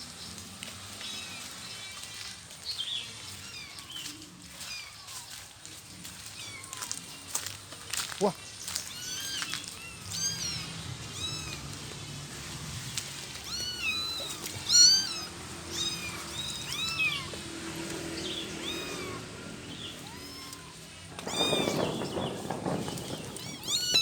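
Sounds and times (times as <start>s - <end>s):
kittens mewing: 8.9s - 12.1s, 13.2s - 24.0s.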